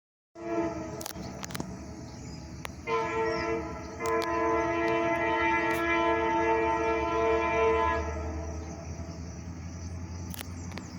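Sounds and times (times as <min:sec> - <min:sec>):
locomotive air horn chord: 0:00.4 - 0:01.6, 0:02.8 - 0:09.0.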